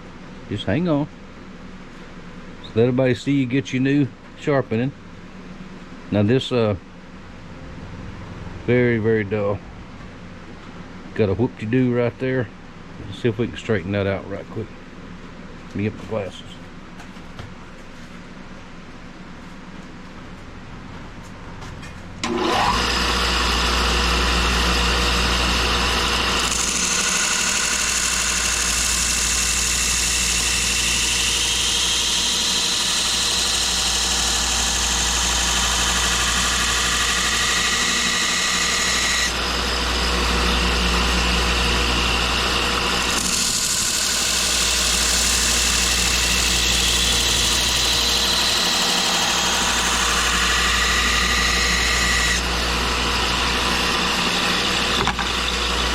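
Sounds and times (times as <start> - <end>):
electric grinder humming: 22.2 - 55.9.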